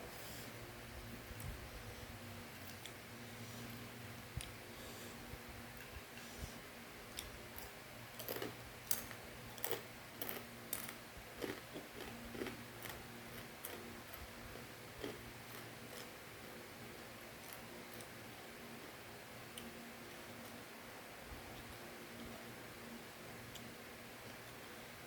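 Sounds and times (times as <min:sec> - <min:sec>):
low steady hum: 0:00.0 - 0:25.0
crunchy snack chewing: 0:07.2 - 0:14.3, 0:15.0 - 0:16.1.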